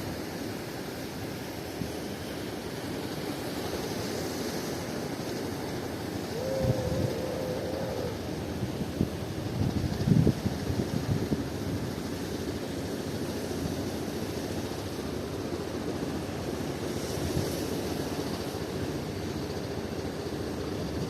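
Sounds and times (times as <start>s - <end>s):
wind buffeting microphone: 6.2s - 12.1s.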